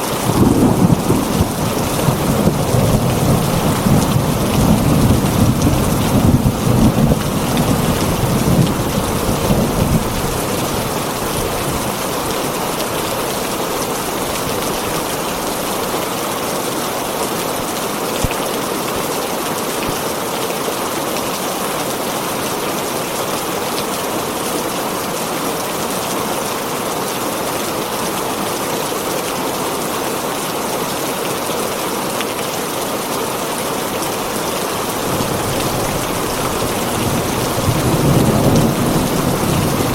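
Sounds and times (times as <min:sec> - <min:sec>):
thunder rumble: 0:00.0 - 0:13.6, 0:34.8 - 0:39.9
heavy rain on a tin roof: 0:00.0 - 0:39.9.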